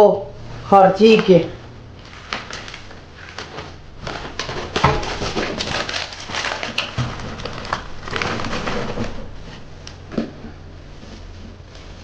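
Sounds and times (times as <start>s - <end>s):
paper crumpling and rustling: 2.0s - 9.8s.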